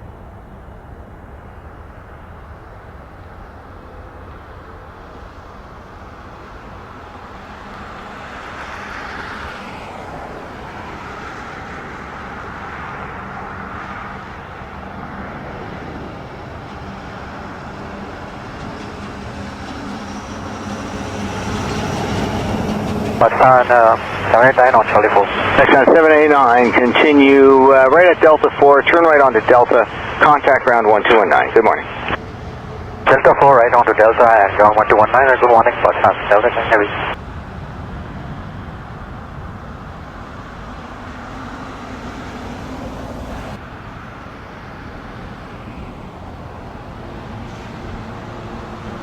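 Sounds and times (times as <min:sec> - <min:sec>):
jet engine rumble and whine: 0:00.0 - 0:49.0.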